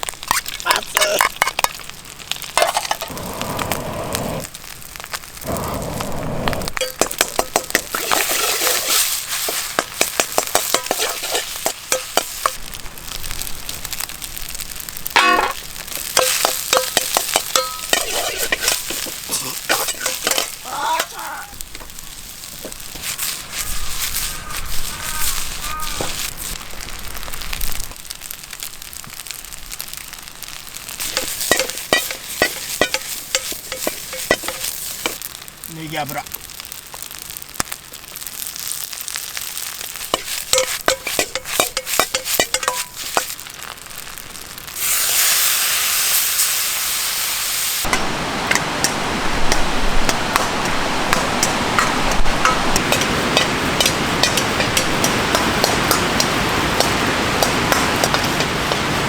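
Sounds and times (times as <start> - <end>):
food sizzling in a wok: 0.0 - 59.0
utensil striking and scraping wok: 2.5 - 3.2, 6.8 - 12.6, 15.1 - 26.6, 31.0 - 35.2, 39.9 - 43.5, 47.8 - 59.0.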